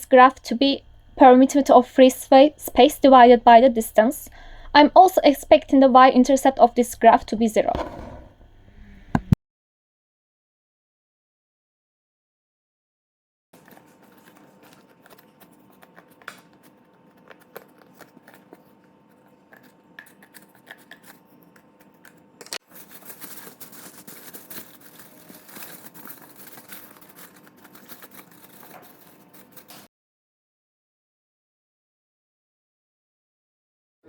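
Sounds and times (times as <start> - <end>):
faint electrical hum: 0.0 - 9.4.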